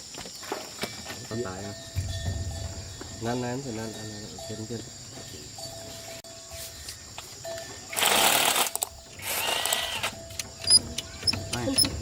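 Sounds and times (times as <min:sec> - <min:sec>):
power tool bursts with whine: 0:07.9 - 0:10.2.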